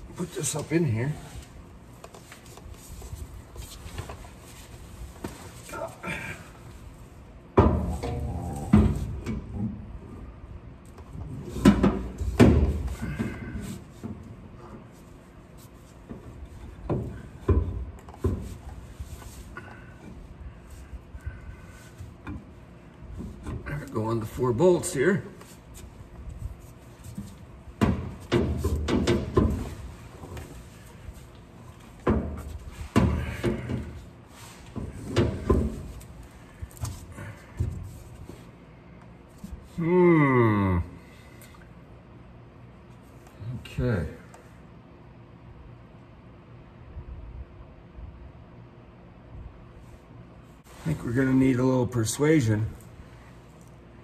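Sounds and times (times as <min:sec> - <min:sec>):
metal knocks and clunks: 0:07.5 - 0:09.8, 0:27.8 - 0:29.9.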